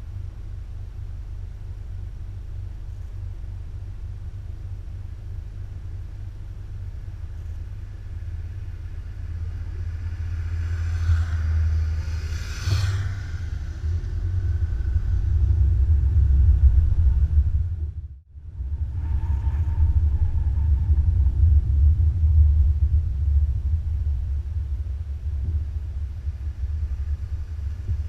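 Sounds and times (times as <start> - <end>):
motorcycle road rumble: 0.0 - 28.0
wind noise: 7.2 - 28.0
brief whoosh: 9.8 - 17.8.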